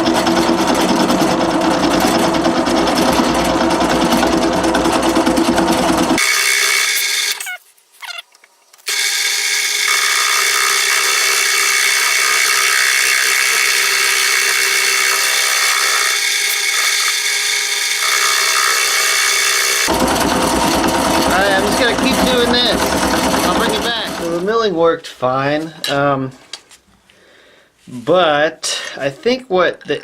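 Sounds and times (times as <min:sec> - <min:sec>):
drill press milling metal: 0:00.0 - 0:07.5, 0:08.9 - 0:24.5.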